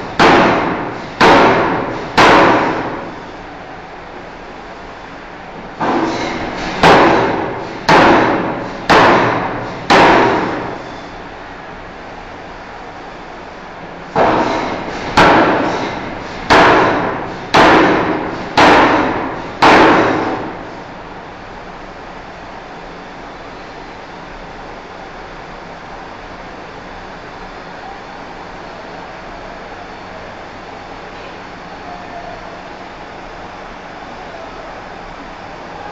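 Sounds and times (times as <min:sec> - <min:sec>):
shop hum: 0:00.0 - 0:35.9
forging hammer striking steel: 0:00.1 - 0:03.1, 0:05.8 - 0:10.8, 0:14.2 - 0:20.6.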